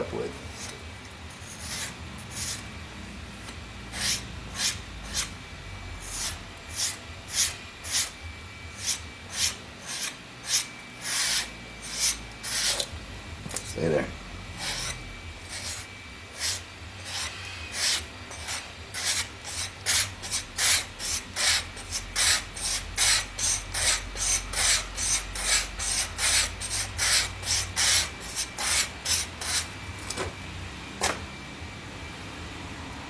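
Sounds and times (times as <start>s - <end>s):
razor stropped on leather: 14.6s - 29.7s.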